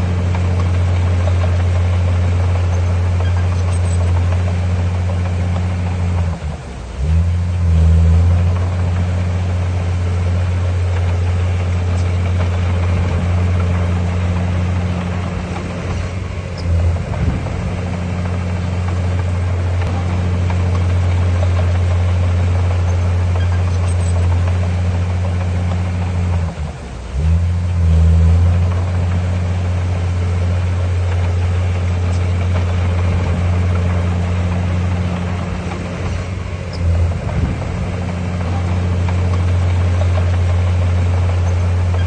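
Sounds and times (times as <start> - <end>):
diesel engine droning: 0.0 - 42.0.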